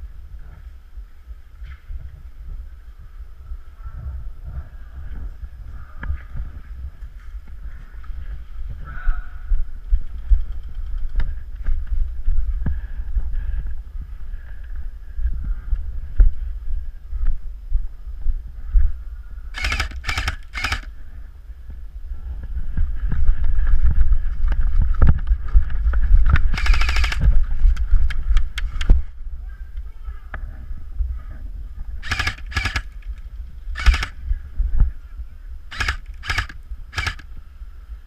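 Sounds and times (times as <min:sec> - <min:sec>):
wind rumble on microphone: 0:00.0 - 0:38.0
airsoft guns firing: 0:19.6 - 0:20.9, 0:32.0 - 0:33.2, 0:33.8 - 0:34.2, 0:35.7 - 0:37.2.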